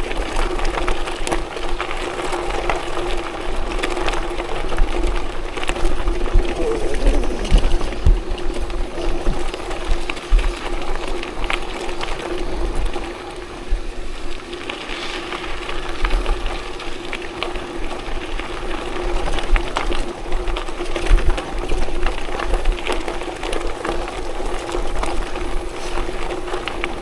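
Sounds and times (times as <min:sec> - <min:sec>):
tyres rattling over gravel: 0:00.0 - 0:27.0
wind buffeting microphone: 0:03.2 - 0:23.4
steady hum: 0:06.0 - 0:09.5.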